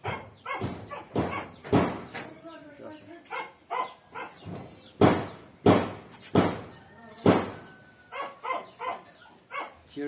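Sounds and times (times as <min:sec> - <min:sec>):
heavy knocks: 0:00.1 - 0:02.3, 0:04.4 - 0:07.6.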